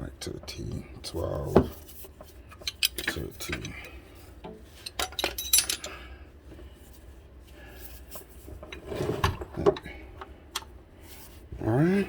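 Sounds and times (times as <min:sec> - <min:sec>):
metal sockets clinking: 0:02.6 - 0:03.8, 0:04.8 - 0:06.0.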